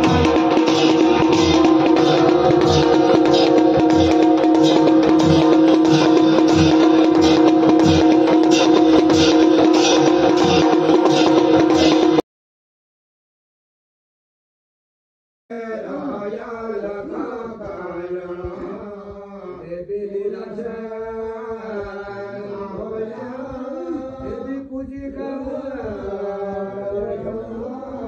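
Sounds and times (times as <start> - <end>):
voices chanting a hymn: 15.5 - 28.0.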